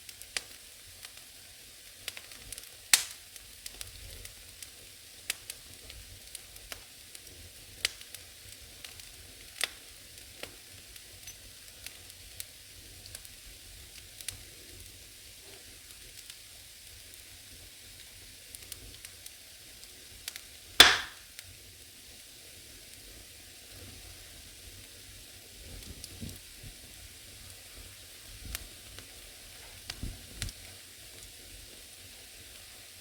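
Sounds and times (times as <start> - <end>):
firewood crackling and popping: 1.9 - 12.2, 20.2 - 21.2, 28.3 - 31.4.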